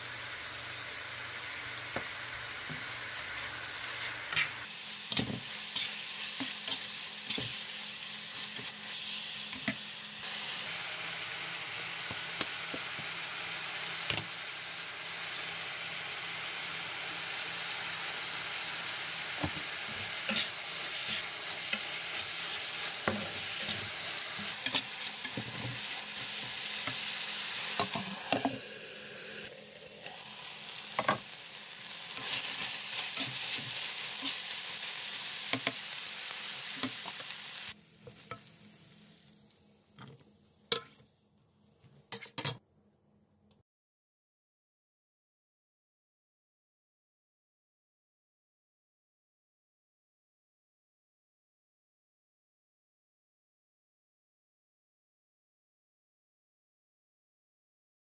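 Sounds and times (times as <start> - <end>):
chicken sizzling in a frying pan: 0.0 - 41.1
spatula scraping and knocking pan: 19.4 - 27.0.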